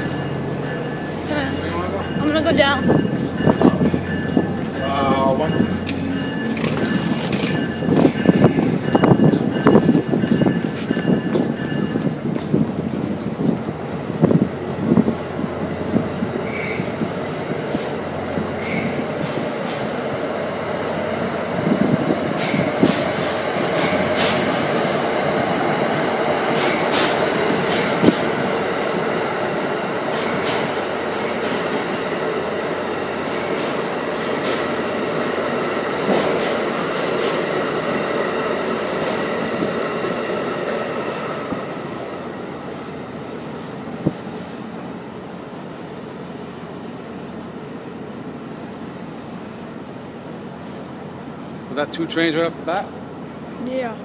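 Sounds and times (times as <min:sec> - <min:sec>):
train rumbling past: 0:00.0 - 0:54.0
thin high squeal: 0:16.4 - 0:16.9.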